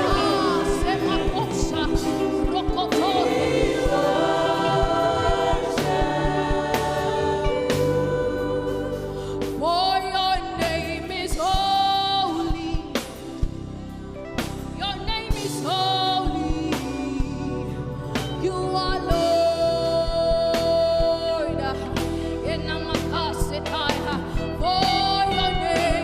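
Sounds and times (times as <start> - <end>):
steady drum beat: 0.0 - 9.0
person singing gospel: 0.0 - 13.0, 15.0 - 26.0
keyboard chords: 0.0 - 26.0.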